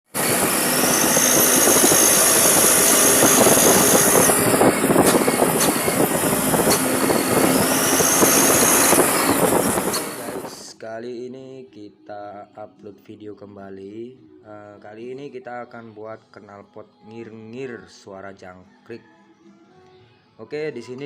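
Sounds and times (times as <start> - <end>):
exhaust whistle whine: 0.1 - 10.6
truck engine rattle: 0.1 - 10.6.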